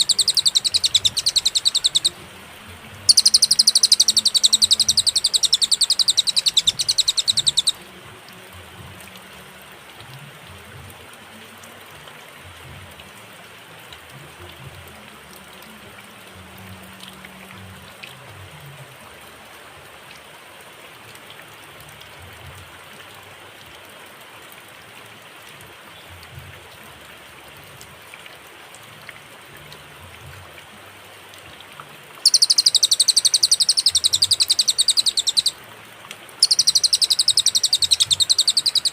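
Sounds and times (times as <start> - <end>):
singing rapidly repeated notes: 0.0 - 7.9, 32.2 - 35.6, 36.4 - 38.9
faint hiss: 27.6 - 38.9.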